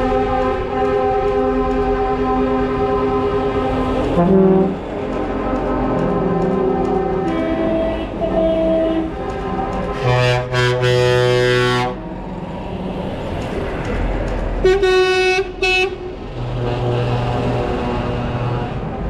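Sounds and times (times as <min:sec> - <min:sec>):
passing trucks rumbling: 0:00.0 - 0:19.0
truck air horn blasts: 0:04.2 - 0:04.8, 0:06.9 - 0:09.2, 0:09.8 - 0:12.0, 0:14.6 - 0:19.0.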